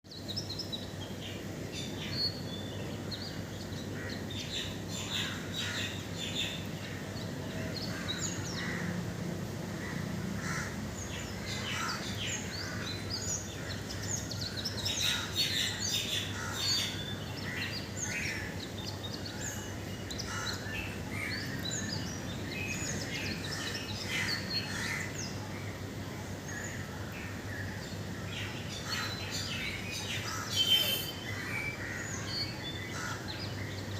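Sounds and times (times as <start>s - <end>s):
birds chirping and singing: 10.4s - 33.9s.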